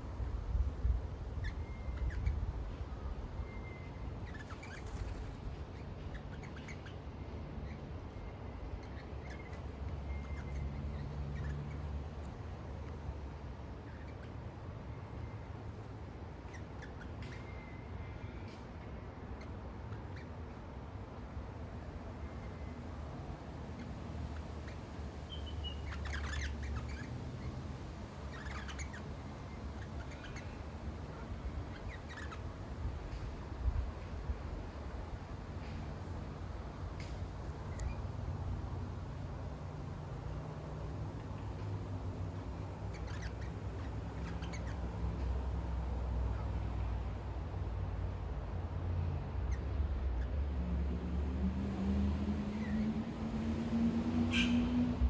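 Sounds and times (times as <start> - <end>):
birds squawking: 1.4 - 2.4, 8.8 - 13.0, 23.8 - 27.6, 28.3 - 32.5, 42.8 - 44.9
birds chirping: 1.4 - 33.3, 40.8 - 47.0
thin bird whistle: 3.4 - 5.2, 7.6 - 11.9, 25.3 - 27.6, 54.3 - 54.8.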